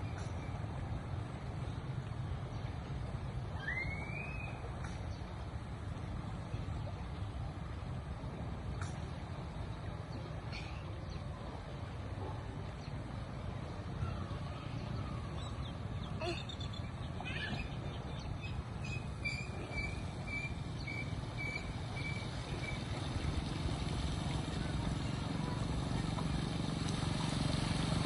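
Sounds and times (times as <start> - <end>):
birds chirping: 8.7 - 26.5.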